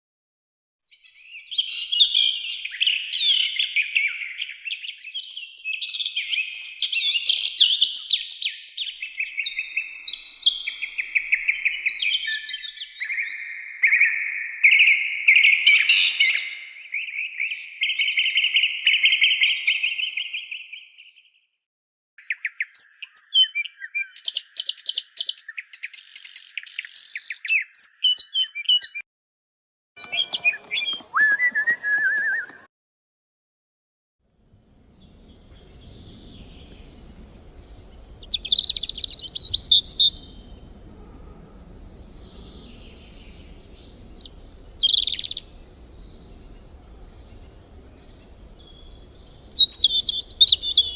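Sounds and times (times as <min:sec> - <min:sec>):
songbirds warbling and trilling: 0:00.9 - 0:21.4, 0:22.2 - 0:29.0, 0:34.8 - 0:50.9
bird sharp chirps and clicks: 0:22.2 - 0:29.0, 0:30.0 - 0:32.6, 0:35.1 - 0:40.5, 0:41.7 - 0:50.9.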